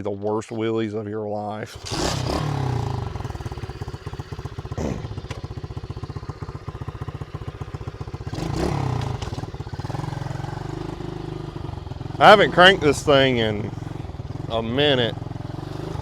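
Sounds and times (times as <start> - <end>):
motorbike engine idling and revving: 1.7 - 16.0.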